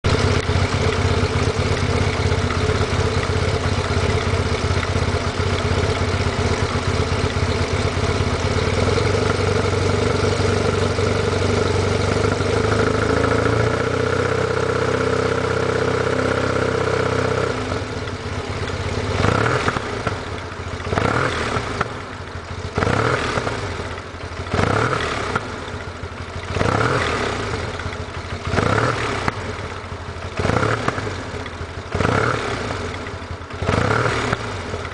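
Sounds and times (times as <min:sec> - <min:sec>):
scooter engine idling and revving: 0:00.0 - 0:34.9.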